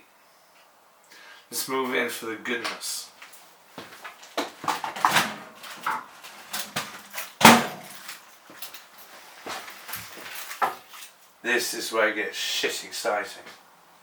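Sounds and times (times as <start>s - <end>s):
kitchen knocks and rustles: 3.8s - 11.2s.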